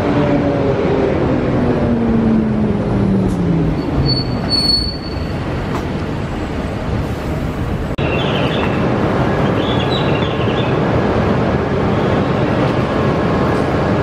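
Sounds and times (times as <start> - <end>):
train rumble: 0.0 - 14.0
brief high squeal: 3.8 - 5.4.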